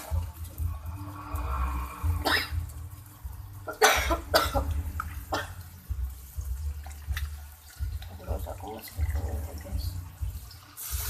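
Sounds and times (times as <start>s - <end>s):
person coughing: 2.2s - 2.6s, 3.7s - 4.7s.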